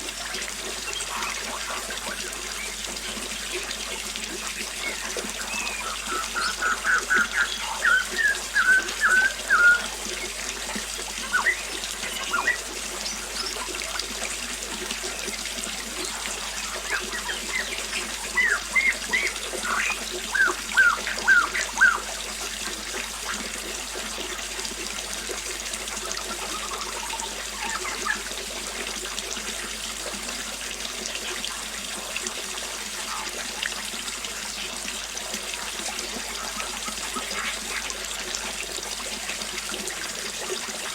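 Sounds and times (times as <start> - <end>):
small waterfall splashing: 0.0 - 40.9
birds chirping: 4.3 - 14.0, 16.1 - 22.8, 26.3 - 28.4.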